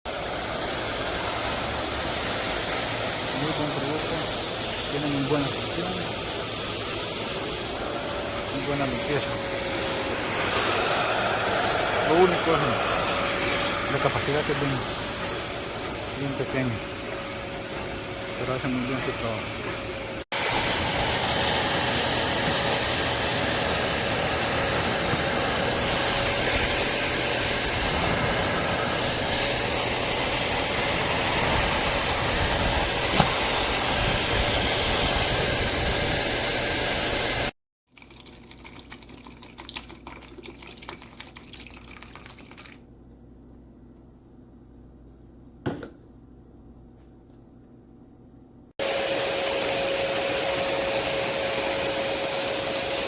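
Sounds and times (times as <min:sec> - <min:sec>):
spot cleaner motor sucking water: 0:00.0 - 0:37.5, 0:48.8 - 0:53.0.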